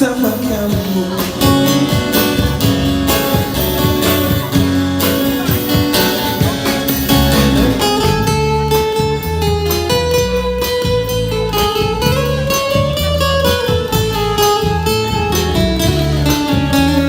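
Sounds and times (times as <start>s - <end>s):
band playing instrumental: 0.0s - 17.0s
guitar strumming: 0.0s - 17.0s
lead melody long notes: 1.0s - 12.6s.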